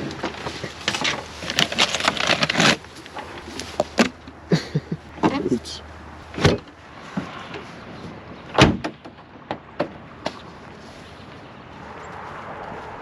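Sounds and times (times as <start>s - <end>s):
vehicle door shutting: 8.5s - 9.2s.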